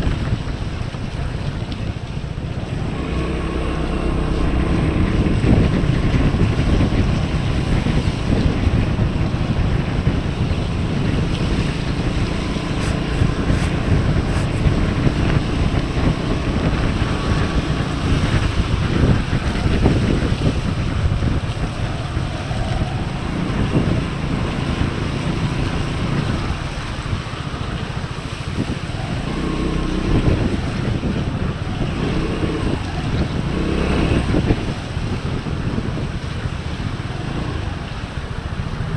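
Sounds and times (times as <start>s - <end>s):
scooter engine running: 0.0s - 38.9s
wind buffeting microphone: 0.0s - 38.9s.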